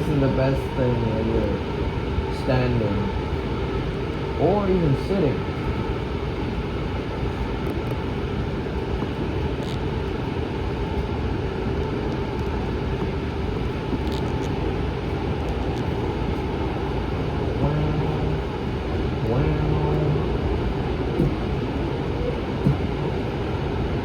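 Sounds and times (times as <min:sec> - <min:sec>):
faint steady hum: 0:00.0 - 0:24.0
light rail train rumble: 0:00.0 - 0:24.0.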